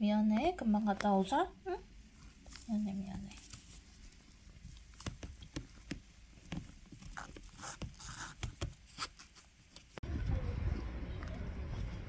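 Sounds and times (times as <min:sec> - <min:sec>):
light clicks and taps: 0:02.5 - 0:08.8.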